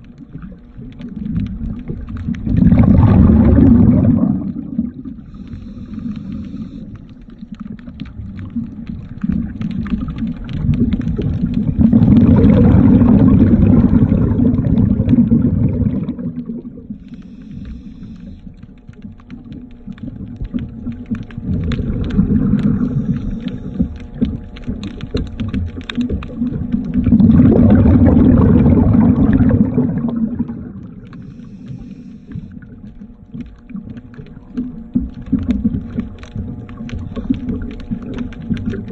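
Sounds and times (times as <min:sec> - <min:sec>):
diver's exhaled bubbles rumbling: 0:00.0 - 0:38.9
small clicks and taps: 0:17.0 - 0:27.1, 0:31.0 - 0:38.9.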